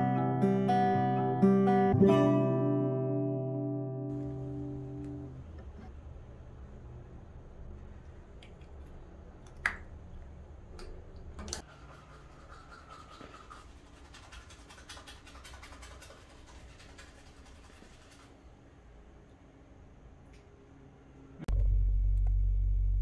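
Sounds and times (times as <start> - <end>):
toothbrush scrubbing teeth: 11.6 - 18.4.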